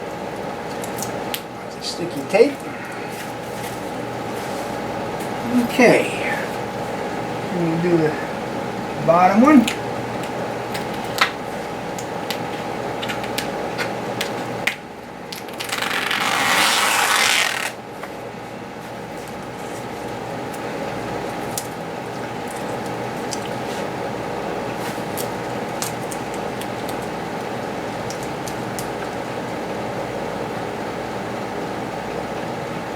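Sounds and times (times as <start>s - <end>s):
masking tape crackling: 0.0s - 32.5s
shop air hum: 0.0s - 32.9s
adhesive film peeling: 10.8s - 18.2s, 24.6s - 29.2s.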